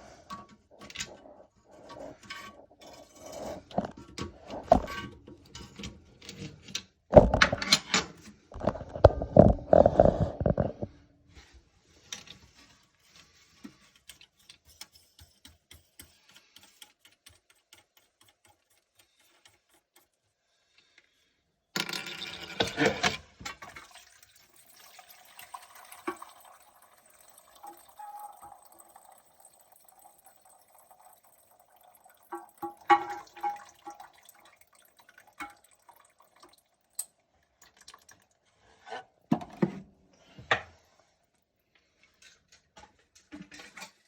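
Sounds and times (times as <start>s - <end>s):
water running in toilet tank: 0.0s - 7.6s, 22.0s - 39.4s.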